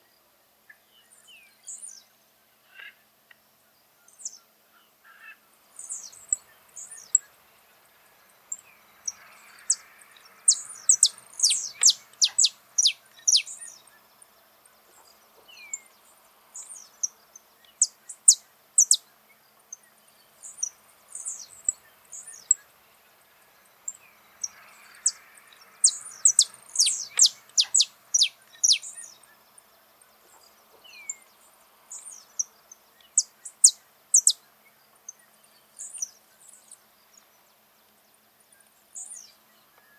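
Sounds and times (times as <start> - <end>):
finch singing: 8.5 - 14.1, 16.6 - 19.1, 23.9 - 29.5, 30.3 - 36.7.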